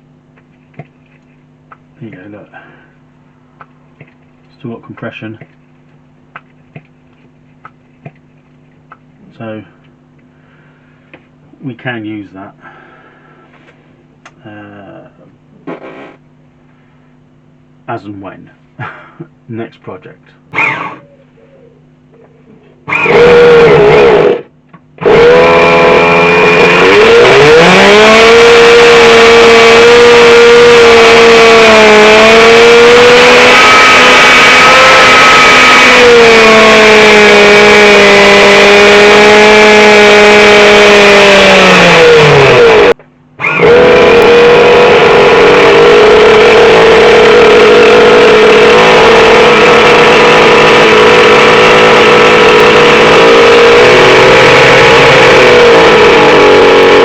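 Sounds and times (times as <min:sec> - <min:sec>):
model car engine buzzing: 0:20.5 - 0:21.0, 0:22.8 - 0:57.0.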